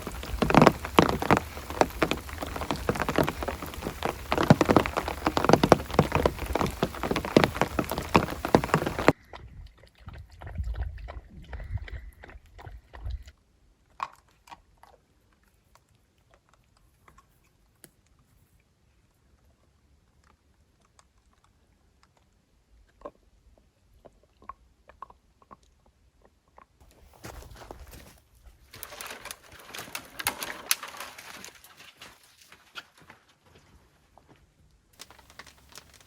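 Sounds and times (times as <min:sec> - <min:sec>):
faint clicks and crackles: 0:00.0 - 0:09.2, 0:28.6 - 0:33.2, 0:35.0 - 0:36.0
heavy rain pattering: 0:00.0 - 0:09.2, 0:28.8 - 0:31.5, 0:35.0 - 0:36.0.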